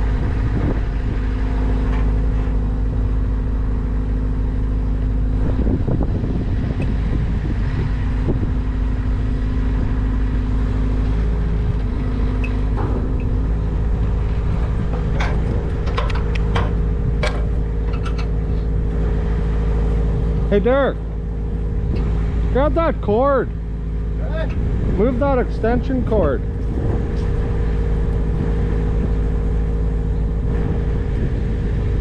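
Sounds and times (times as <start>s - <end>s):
engine running: 0.0s - 32.0s
sharp knocks and clatters: 11.8s - 18.4s.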